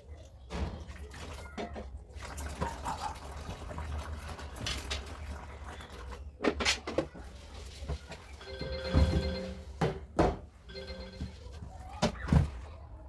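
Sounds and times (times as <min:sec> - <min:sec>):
household items clattering: 0:06.4 - 0:12.6.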